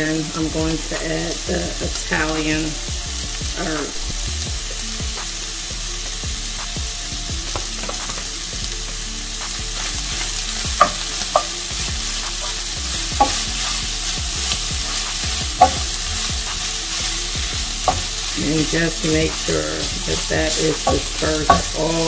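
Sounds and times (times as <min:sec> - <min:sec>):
food sizzling in a frying pan: 0:00.0 - 0:22.0
wooden spoon stirring and scraping: 0:09.6 - 0:22.0
spoon knocking against pan: 0:10.6 - 0:11.7, 0:13.1 - 0:13.8, 0:14.4 - 0:16.6, 0:17.4 - 0:18.4, 0:20.4 - 0:22.0.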